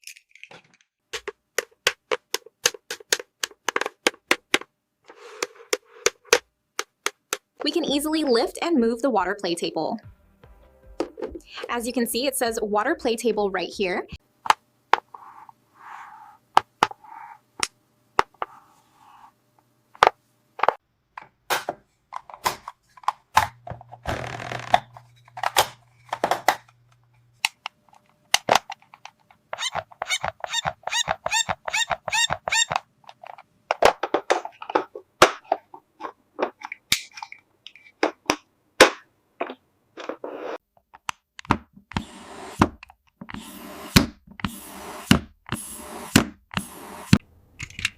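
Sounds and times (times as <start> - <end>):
plastic toy parts clicking: 47.6 - 47.9.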